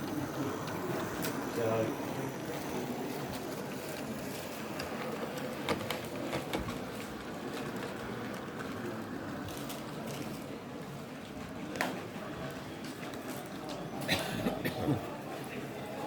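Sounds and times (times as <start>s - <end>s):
exhibition hall hubbub: 0.0s - 16.0s.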